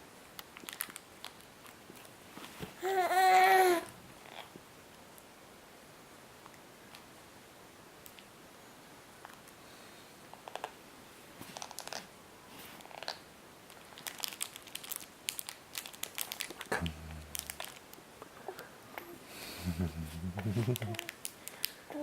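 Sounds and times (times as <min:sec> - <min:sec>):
snack packaging crinkling: 0:00.4 - 0:02.1, 0:12.8 - 0:18.0, 0:20.5 - 0:21.8
short low vocal sound: 0:16.7 - 0:17.7, 0:18.4 - 0:21.1.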